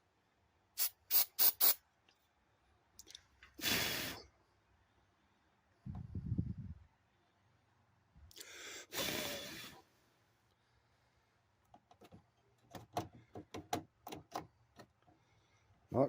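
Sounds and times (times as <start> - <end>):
aerosol spray hiss: 0.8 - 1.8
light clicks and taps on plastic: 11.6 - 15.2.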